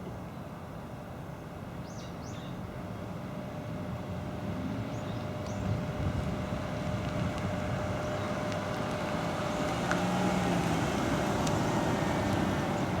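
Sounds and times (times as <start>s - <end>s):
motor vehicle noise: 2.7s - 13.0s.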